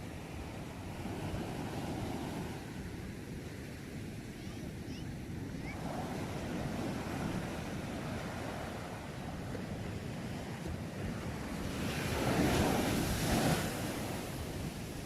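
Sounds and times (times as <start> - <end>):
sea waves washing onto shore: 5.4 - 15.0.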